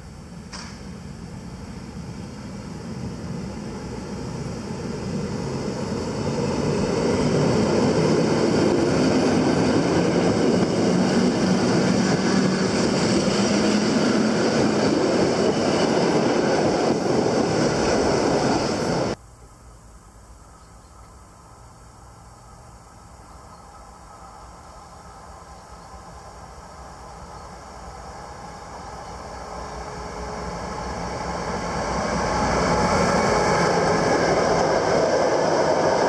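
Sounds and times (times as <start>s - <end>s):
train wheels rumbling on rails: 0.0s - 19.2s, 23.4s - 36.0s.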